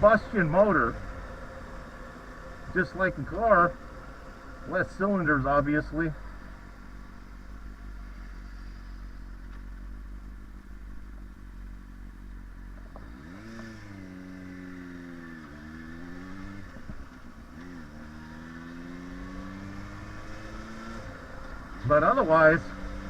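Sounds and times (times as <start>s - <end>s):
wind rumble: 0.0s - 9.9s
motorcycle engine revving: 0.0s - 23.0s.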